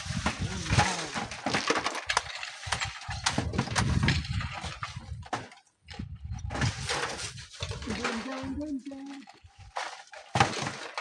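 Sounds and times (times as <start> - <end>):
sharp knocks and scrapes: 0.0 - 8.7
strong gusting wind on microphone: 3.2 - 5.3, 5.9 - 7.5.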